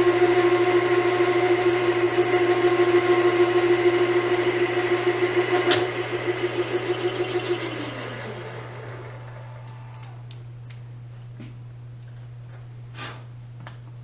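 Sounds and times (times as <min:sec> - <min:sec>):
machine tool whine: 0:00.0 - 0:11.0.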